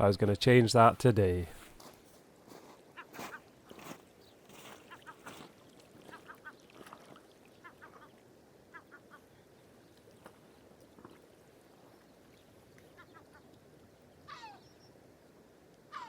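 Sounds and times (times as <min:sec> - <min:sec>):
faint bird calls: 0:04.2 - 0:15.0.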